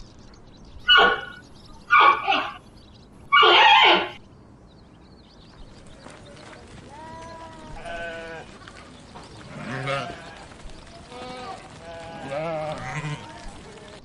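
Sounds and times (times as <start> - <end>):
farm animal bleating: 0.9 - 2.6, 3.3 - 4.2, 7.1 - 8.5, 9.5 - 10.5, 11.1 - 13.8.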